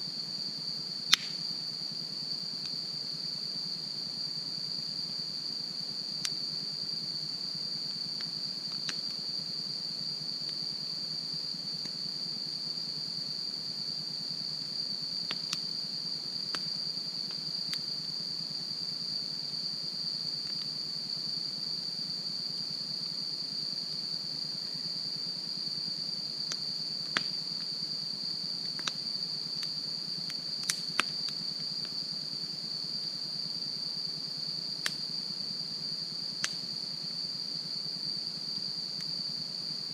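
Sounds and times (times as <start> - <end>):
crickets trilling: 0.0 - 39.9
campfire popping and cracking: 1.1 - 1.4, 30.6 - 31.1.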